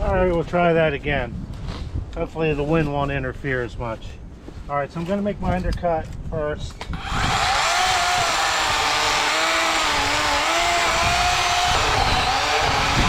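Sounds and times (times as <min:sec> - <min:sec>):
electric chainsaw cutting wood: 0:07.0 - 0:13.0.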